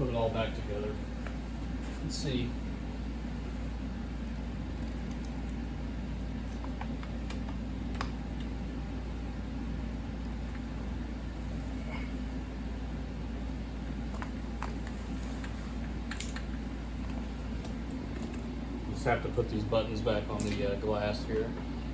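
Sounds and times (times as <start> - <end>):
low machine hum: 0.0 - 21.9
clicks of small parts handled: 16.1 - 16.6.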